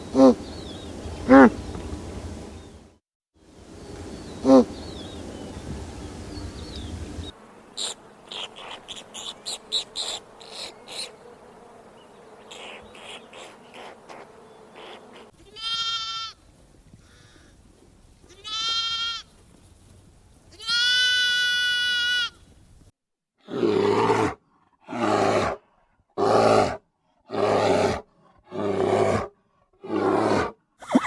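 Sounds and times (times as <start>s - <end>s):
farm animal bleating: 14.8s - 16.4s, 18.2s - 19.4s, 20.5s - 22.4s.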